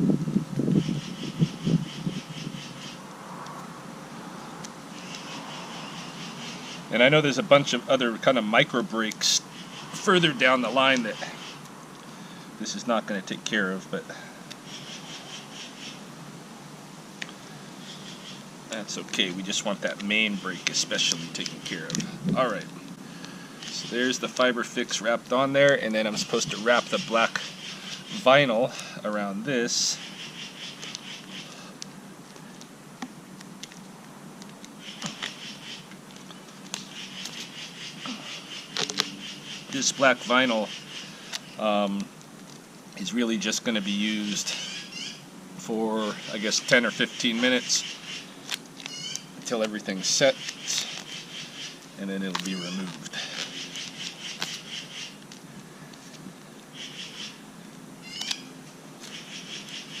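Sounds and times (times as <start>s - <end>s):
rapid high-pitched animal chirps: 0.8s - 3.0s, 14.6s - 16.0s, 26.2s - 28.3s, 29.9s - 31.7s, 34.8s - 35.9s, 36.8s - 41.6s, 44.5s - 45.2s, 46.1s - 49.4s, 50.1s - 55.2s, 56.7s - 57.4s, 58.0s - 60.0s.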